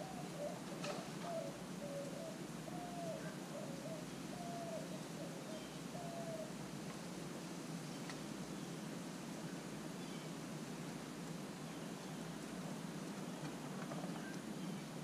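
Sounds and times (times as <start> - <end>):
bird cooing: 0.0 - 6.6.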